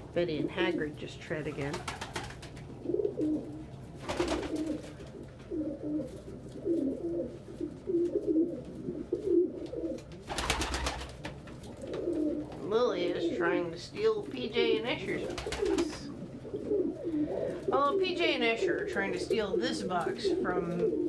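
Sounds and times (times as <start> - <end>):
pigeons cooing: 0.0 - 21.0
wings rustling: 1.3 - 17.8.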